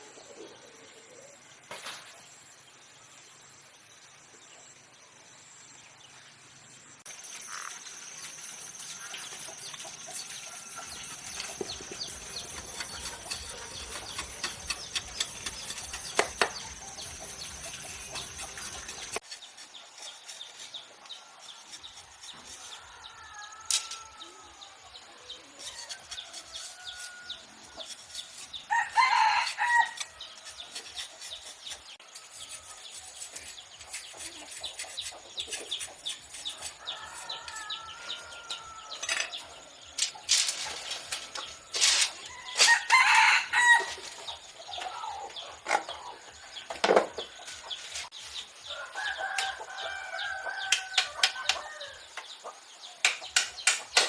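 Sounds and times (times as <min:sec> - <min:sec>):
chickens clucking: 0:09.0 - 0:19.2, 0:34.0 - 0:52.6
rooster crowing: 0:28.7 - 0:30.0, 0:36.8 - 0:39.1, 0:42.3 - 0:44.1, 0:48.7 - 0:52.1.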